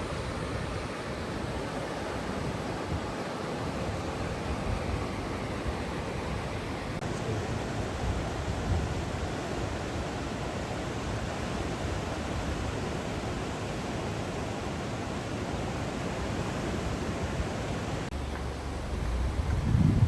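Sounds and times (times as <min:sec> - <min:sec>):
waves breaking: 0:00.0 - 0:20.0
wind rumble on microphone: 0:16.3 - 0:20.0.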